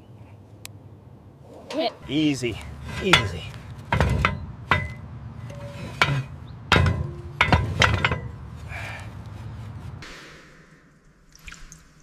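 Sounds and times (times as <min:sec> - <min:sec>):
metal grate clanking: 0:01.5 - 0:08.6.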